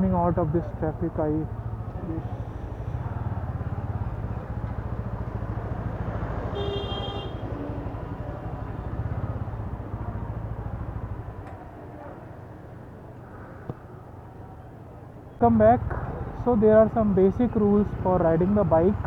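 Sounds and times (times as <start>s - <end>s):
motorcycle engine chugging: 0.0s - 11.6s, 15.4s - 19.0s.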